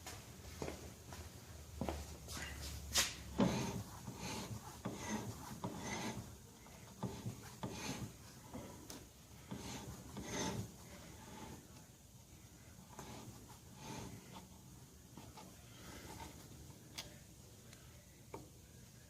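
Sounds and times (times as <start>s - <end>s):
hands knocking and scraping metal fittings: 2.9s - 11.6s.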